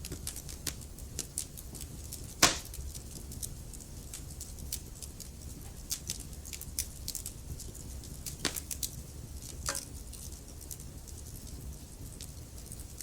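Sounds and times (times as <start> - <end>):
loud fire pops: 0.0 - 4.8, 5.4 - 10.0
fire crackling: 0.0 - 13.0
low fire rumble: 0.0 - 13.0.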